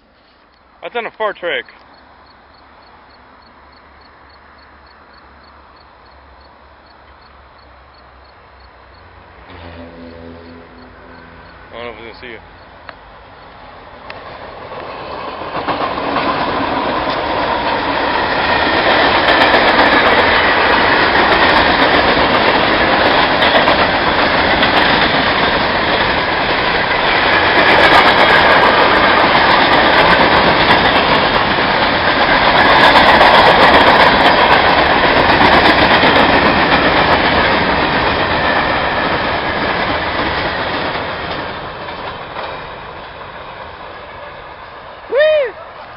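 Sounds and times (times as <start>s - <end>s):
train wheels clattering on rails: 14.0s - 44.9s.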